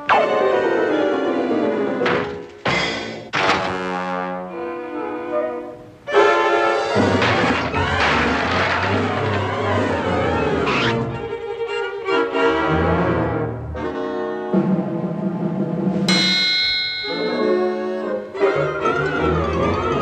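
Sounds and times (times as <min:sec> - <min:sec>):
orchestral cartoon music: 0:03.8 - 0:16.3, 0:17.0 - 0:20.0
bright high chord: 0:16.1 - 0:18.2.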